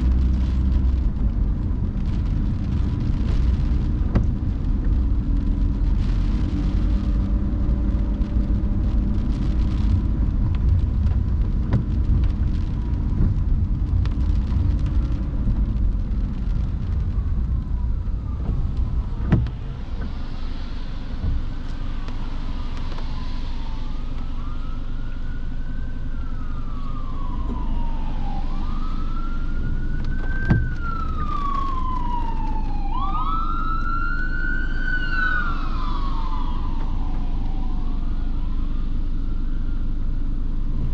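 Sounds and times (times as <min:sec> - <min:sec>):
car driving in rain: 0:00.0 - 0:40.9
emergency siren wailing: 0:13.7 - 0:40.9.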